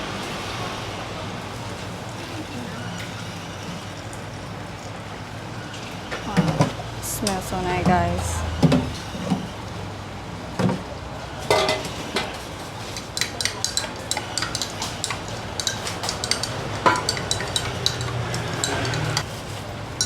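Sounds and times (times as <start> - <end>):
spoon clinking against cup: 12.8 - 19.2.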